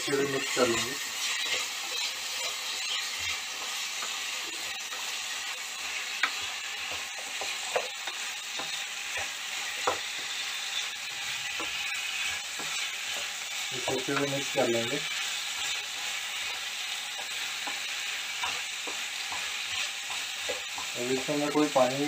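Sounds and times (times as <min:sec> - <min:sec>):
vegetables sizzling in a pan: 0:00.0 - 0:22.0
spatula knocking against pan: 0:06.2 - 0:10.3.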